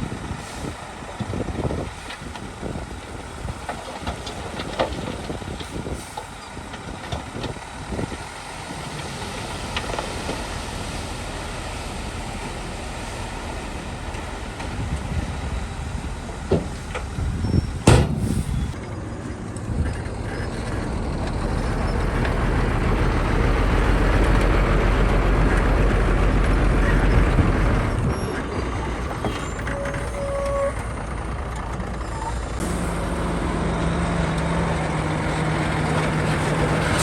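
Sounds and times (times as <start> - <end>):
diesel machinery running: 0.0 - 37.0
sharp knocks: 17.8 - 18.4.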